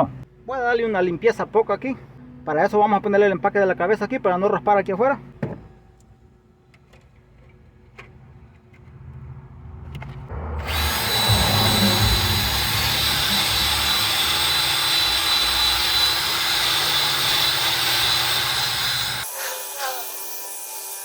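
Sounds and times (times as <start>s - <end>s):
power tool high whine: 10.6s - 21.0s.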